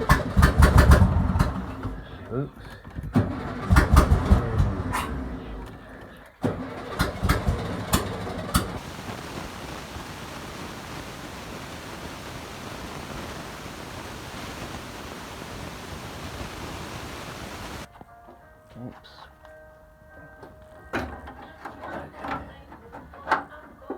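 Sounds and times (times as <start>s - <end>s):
car engine running: 0.0s - 2.2s, 3.2s - 5.9s, 6.5s - 17.9s
engine pops: 0.0s - 2.2s, 2.9s - 5.7s, 6.4s - 9.6s.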